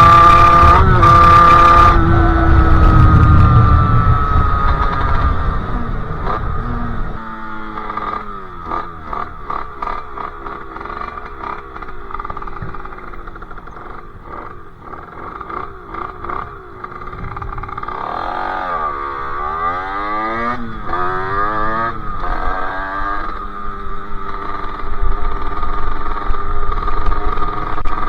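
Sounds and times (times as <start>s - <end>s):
two-stroke engine revving: 0.0s - 28.0s.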